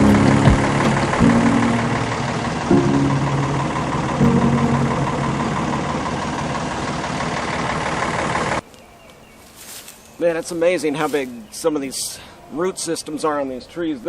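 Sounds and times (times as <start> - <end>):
backhoe engine droning: 0.0 - 8.6.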